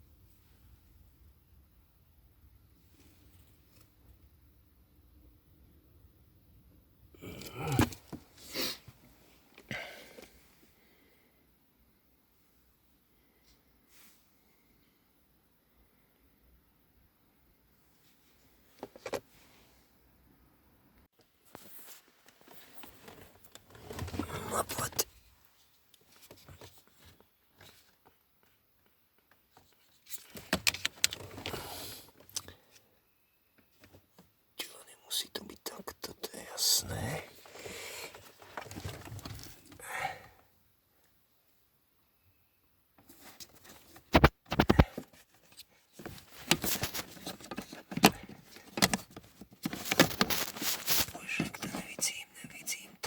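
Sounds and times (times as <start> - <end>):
rustling: 43.0 - 52.1.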